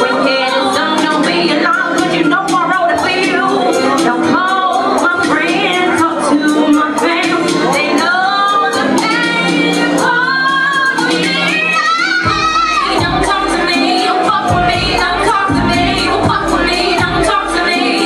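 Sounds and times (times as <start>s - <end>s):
instrumental accompaniment: 0.0s - 18.0s
woman singing: 0.0s - 18.0s
deep bass: 14.5s - 17.6s.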